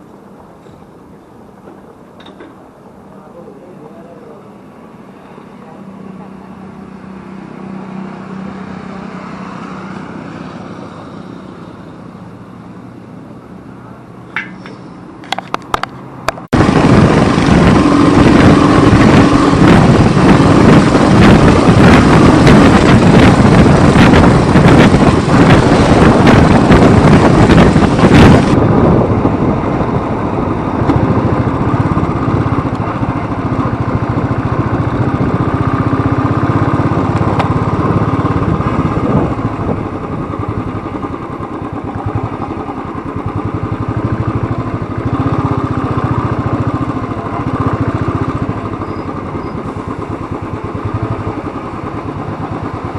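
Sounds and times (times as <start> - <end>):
motorcycle engine running: 15.2 - 52.9
wind rush on microphone: 15.4 - 52.9.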